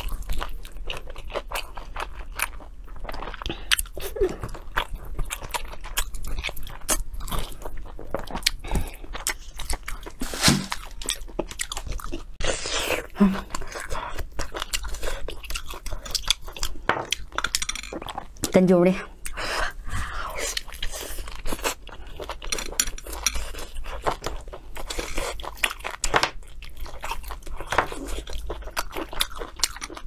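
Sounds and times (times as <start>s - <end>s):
person chewing meat crunchily: 0.0s - 18.5s, 19.1s - 30.0s.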